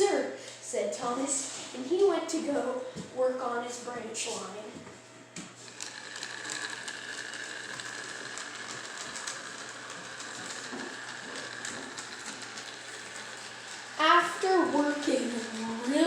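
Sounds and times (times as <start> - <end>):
toy train motor whining: 5.6 - 16.0.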